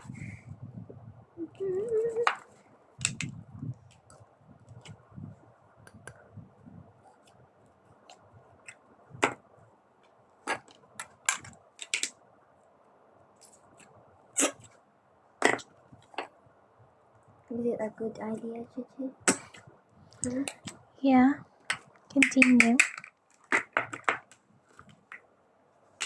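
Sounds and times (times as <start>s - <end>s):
clicks of small objects handled: 2.2s - 4.1s, 10.5s - 12.2s, 21.7s - 25.2s.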